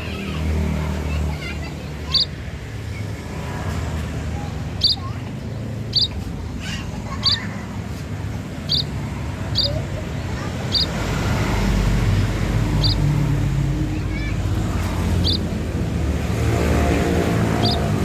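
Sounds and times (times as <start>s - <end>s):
low vehicle rumble: 0.0s - 18.0s
bird call notes: 2.1s - 2.4s, 4.8s - 5.2s, 5.8s - 6.2s, 8.6s - 11.7s, 12.6s - 13.3s, 15.0s - 15.6s, 17.5s - 18.0s.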